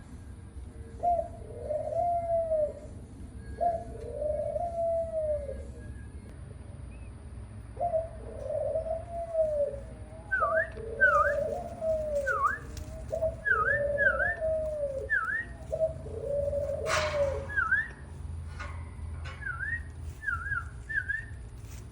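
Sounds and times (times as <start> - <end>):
dove-like cooing: 0.6 - 6.0, 7.7 - 21.8.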